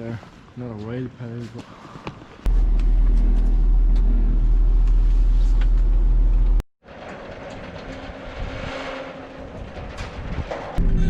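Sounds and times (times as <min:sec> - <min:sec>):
deep rumble: 0:02.5 - 0:06.6, 0:10.4 - 0:11.0.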